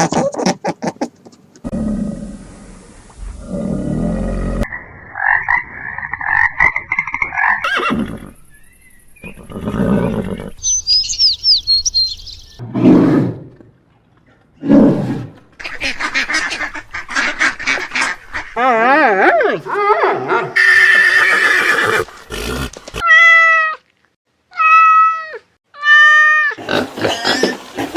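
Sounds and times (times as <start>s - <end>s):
high chirps: 10.6s - 12.6s.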